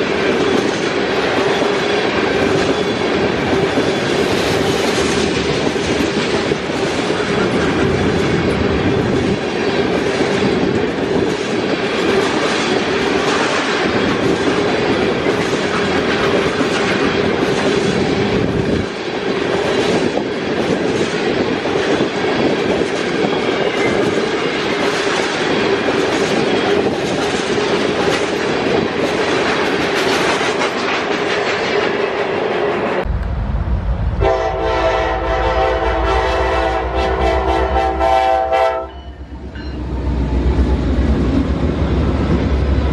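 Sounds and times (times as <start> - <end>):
train wheels clicking over rail joints: 0.0 - 33.4
low rumble: 33.0 - 37.8.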